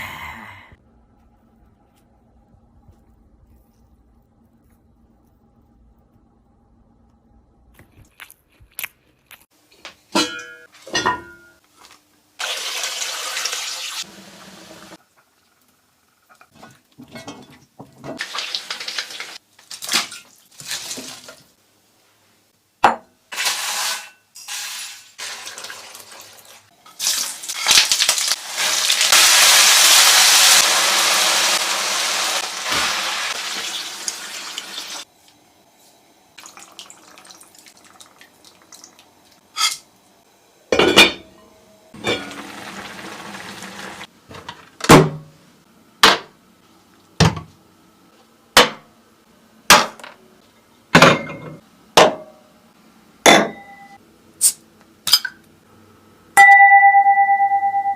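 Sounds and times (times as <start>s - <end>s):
pans and dishes clinking: 10.2s - 11.6s, 51.0s - 52.3s.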